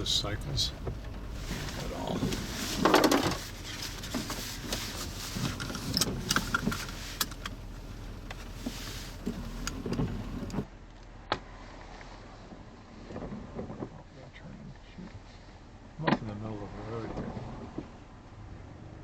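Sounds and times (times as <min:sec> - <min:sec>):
vehicle cabin hum: 0:00.0 - 0:10.7
clicks and knocks: 0:00.4 - 0:10.6.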